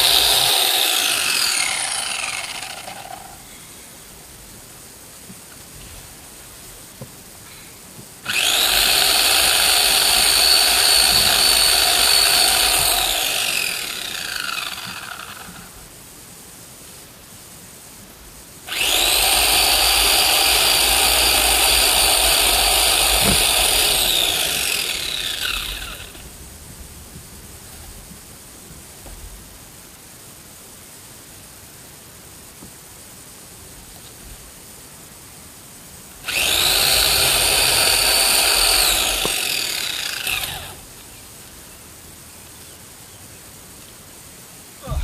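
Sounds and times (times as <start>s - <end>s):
electric chainsaw cutting wood: 0.0s - 3.4s, 8.2s - 15.8s, 18.7s - 26.3s, 36.2s - 40.9s.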